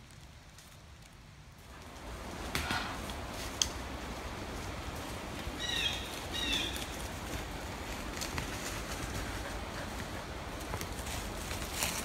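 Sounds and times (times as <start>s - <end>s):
bird calls: 5.6s - 6.9s.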